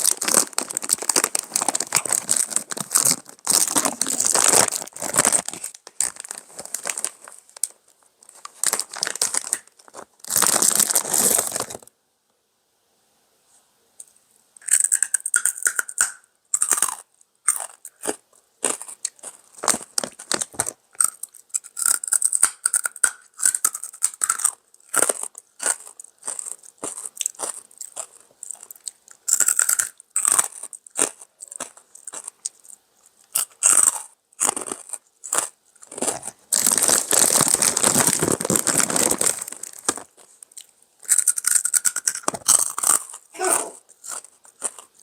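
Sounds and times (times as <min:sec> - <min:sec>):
chewing crunchy pork rinds: 0:14.6 - 0:45.0.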